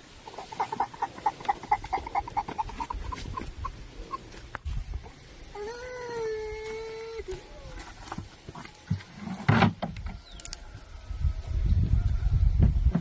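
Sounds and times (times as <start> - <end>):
long held animal call: 5.5 - 7.8.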